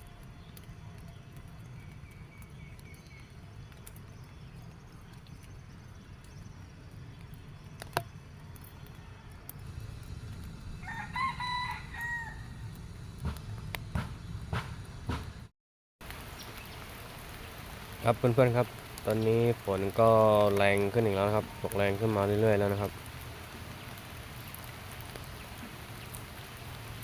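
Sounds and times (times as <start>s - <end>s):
low background rumble: 9.4s - 15.5s
rooster crowing: 10.8s - 12.8s, 21.2s - 22.0s.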